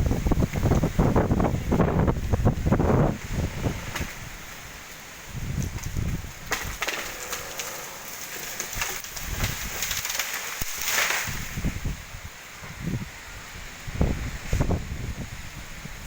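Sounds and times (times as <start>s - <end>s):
strong wind buffeting microphone: 0.0s - 6.8s, 11.2s - 16.0s
rustling leaves: 0.0s - 16.0s
wood cracking: 3.9s - 11.7s.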